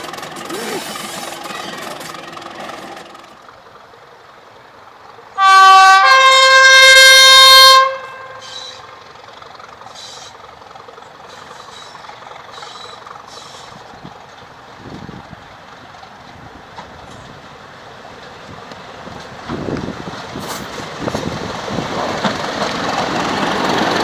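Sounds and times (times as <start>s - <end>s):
locomotive two-tone horn: 5.4s - 9.1s
faint short hisses: 12.6s - 13.8s.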